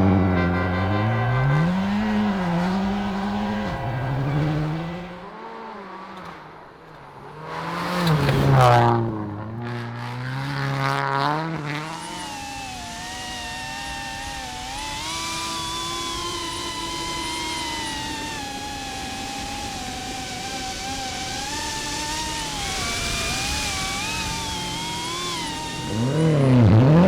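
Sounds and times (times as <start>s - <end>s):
high wavering whine: 0.0s - 5.2s, 12.0s - 27.0s
rally car engine revving: 0.0s - 27.0s.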